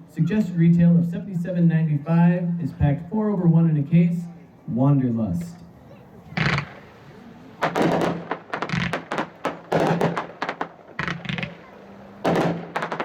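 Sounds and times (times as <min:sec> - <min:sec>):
firework tubes launching thumps: 0:06.3 - 0:13.0.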